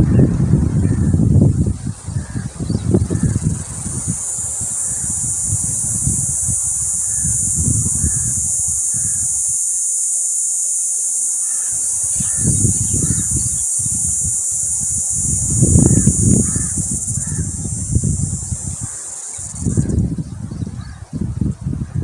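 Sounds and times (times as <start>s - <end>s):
wind buffeting microphone: 0.0s - 10.2s, 11.6s - 22.0s
steady high-pitched hiss: 0.0s - 22.0s.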